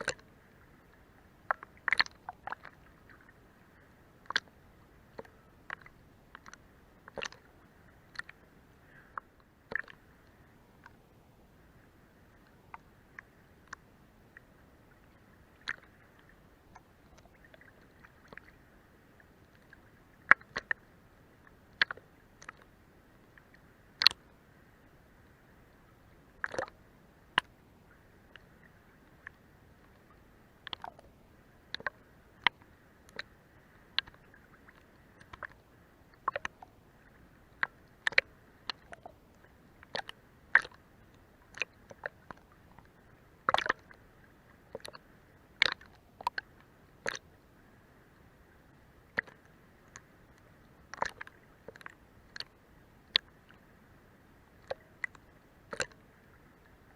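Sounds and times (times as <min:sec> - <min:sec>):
water slapping boat hull: 0:00.0 - 0:10.9, 0:26.4 - 0:27.6, 0:28.3 - 0:36.8, 0:37.5 - 0:40.8, 0:41.4 - 0:44.0, 0:55.7 - 0:56.9
faint wash of water: 0:00.0 - 0:56.9.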